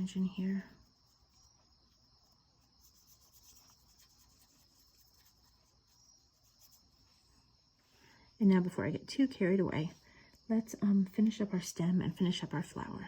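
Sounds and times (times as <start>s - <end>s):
brush stroking on paper: 0.0s - 7.9s.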